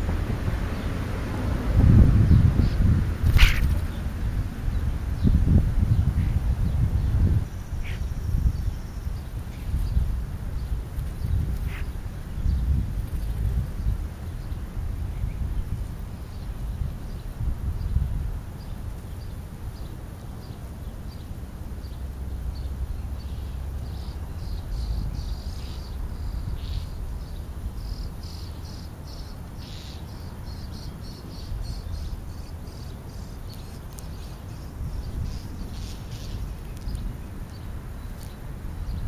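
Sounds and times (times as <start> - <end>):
bird chirps and clicks: 33.4 - 34.4, 35.8 - 38.4.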